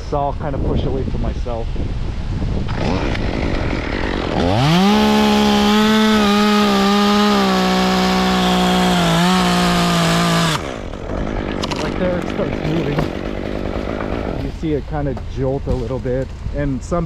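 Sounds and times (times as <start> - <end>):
wind noise on microphone: 0.0 - 6.4, 14.3 - 17.0
chainsaw cutting a limb: 2.6 - 14.6.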